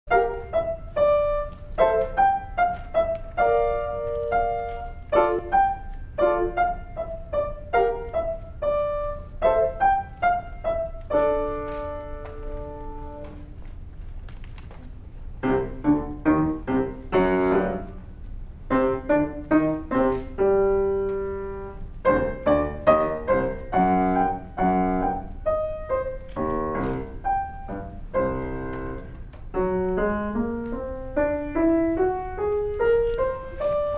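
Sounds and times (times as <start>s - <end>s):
solo piano piece: 0.1s - 13.9s, 15.2s - 33.9s.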